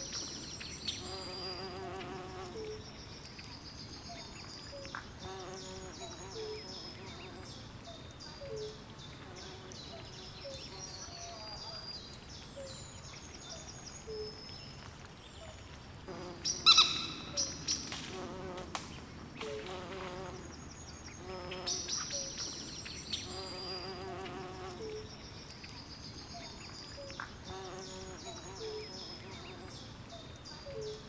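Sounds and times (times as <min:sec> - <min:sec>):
high chirping calls: 0:16.4 - 0:17.9.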